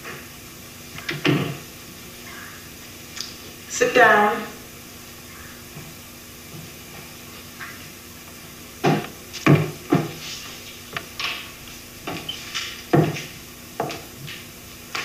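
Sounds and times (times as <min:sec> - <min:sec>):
knocks and thumps on wood: 0:01.1 - 0:01.6, 0:08.8 - 0:10.2, 0:12.9 - 0:14.1.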